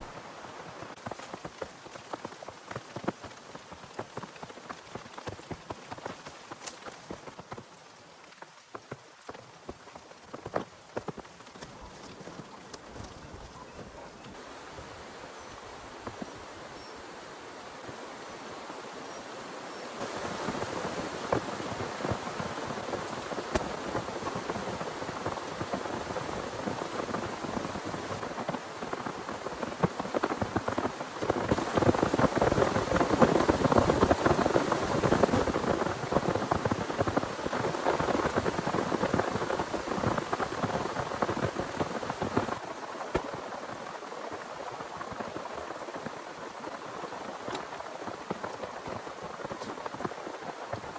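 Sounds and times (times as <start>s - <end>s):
heavy rain falling: 20.0s - 50.9s.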